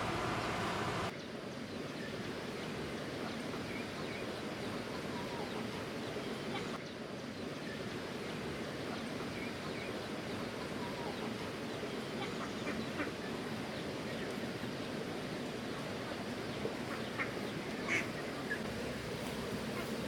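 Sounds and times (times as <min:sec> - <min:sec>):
water rushing: 0:00.0 - 0:01.1.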